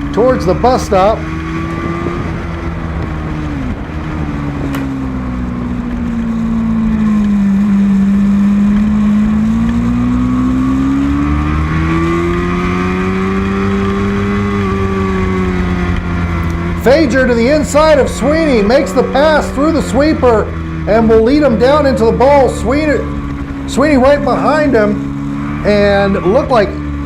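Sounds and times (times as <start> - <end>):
racing motorcycle engine: 0.0 - 27.0
steady low rumble: 16.2 - 27.0.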